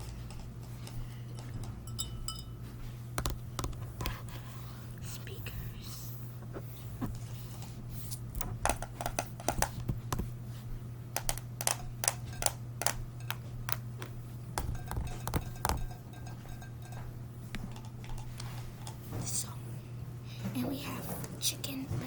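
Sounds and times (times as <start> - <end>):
steady low hum: 0.0 - 22.0
small objects clicking and tapping: 3.2 - 4.1, 8.6 - 10.3, 11.2 - 19.0.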